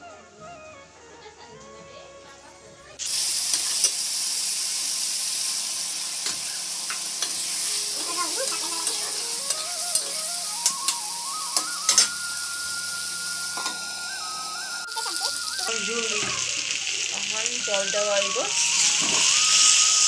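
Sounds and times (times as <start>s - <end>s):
vegetables sizzling in hot oil: 3.0s - 20.0s
metal spatula scraping a pan: 6.2s - 10.8s
faint thin wavering tone: 8.8s - 16.1s.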